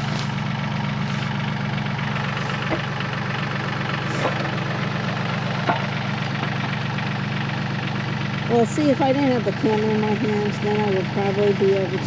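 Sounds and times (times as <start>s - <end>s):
diesel tractor engine running: 0.0s - 12.0s
short knocks: 2.5s - 3.0s.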